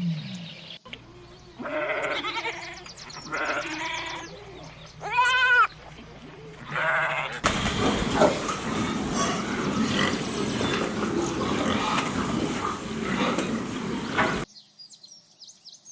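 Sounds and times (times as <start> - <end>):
livestock bleating: 1.6 - 5.7, 6.7 - 14.4
rough noisy sound: 7.4 - 14.5.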